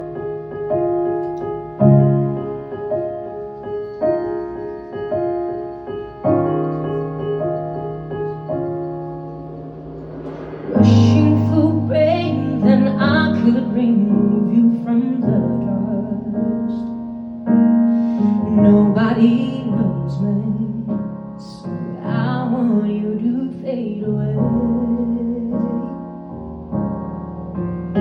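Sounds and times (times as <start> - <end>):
bass and keyboard: 0.0 - 14.7
piano chords: 0.0 - 28.0
woman singing: 10.8 - 16.8, 18.3 - 26.0.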